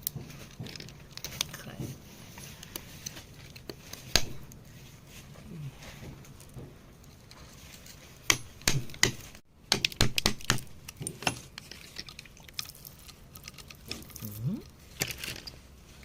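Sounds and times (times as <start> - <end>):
hand tool chipping rock: 8.2 - 11.8.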